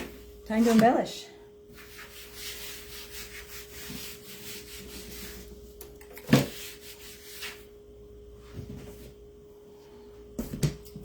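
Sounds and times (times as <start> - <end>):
faint steady hum: 0.0 - 11.0
rubbing and shuffling on a table: 1.7 - 7.7.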